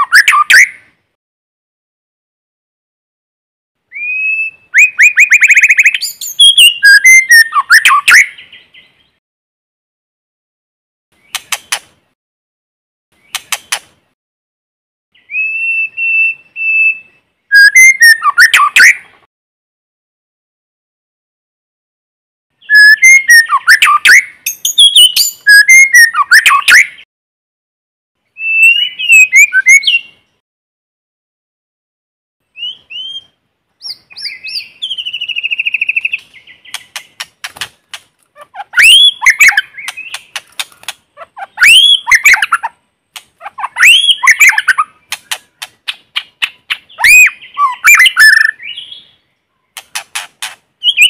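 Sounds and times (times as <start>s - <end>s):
songbird singing: 0.0s - 1.0s, 3.8s - 9.2s, 11.1s - 12.1s, 13.1s - 14.1s, 15.1s - 19.3s, 22.5s - 27.1s, 28.2s - 30.4s, 32.4s - 51.0s.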